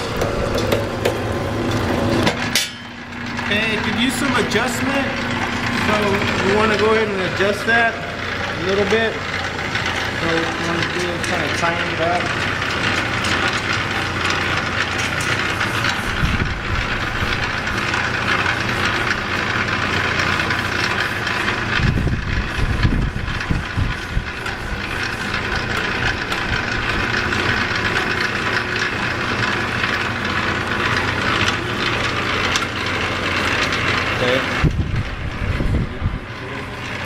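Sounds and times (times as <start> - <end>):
wire stripping machine motor hum: 0.0 - 37.0
heavy low rumble: 16.0 - 18.1, 21.7 - 28.1, 33.9 - 37.0.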